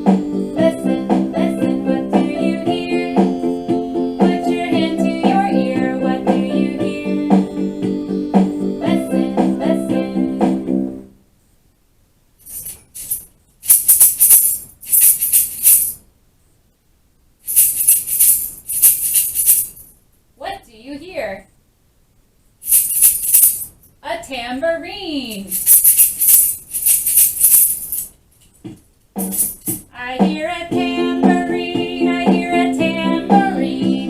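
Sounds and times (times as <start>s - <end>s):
children's song with singing: 0.0s - 11.1s, 29.3s - 34.0s
tambourine jingling: 12.4s - 16.0s, 17.4s - 20.0s, 22.6s - 24.0s, 25.3s - 28.2s, 29.2s - 29.9s.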